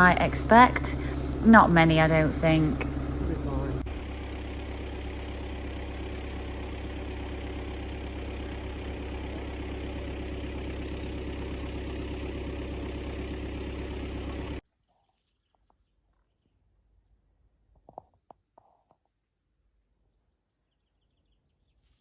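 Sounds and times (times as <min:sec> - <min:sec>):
vehicle engine running: 0:00.0 - 0:14.6.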